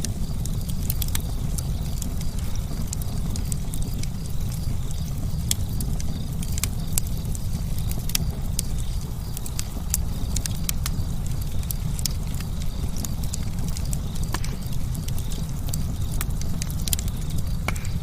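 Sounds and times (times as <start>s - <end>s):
campfire crackling and popping: 0.0s - 18.0s
low rumble of burning: 0.0s - 18.0s.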